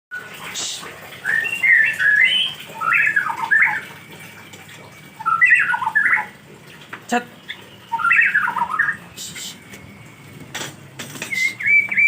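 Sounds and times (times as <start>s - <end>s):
songbird warbling: 1.2s - 3.9s, 5.2s - 6.4s, 7.4s - 9.5s, 11.2s - 12.0s.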